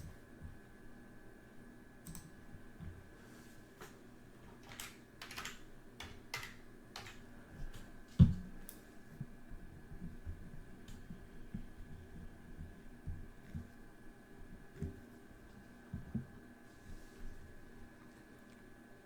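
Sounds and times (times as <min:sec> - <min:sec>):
typing on keyboard: 0:02.0 - 0:02.4, 0:04.6 - 0:07.8.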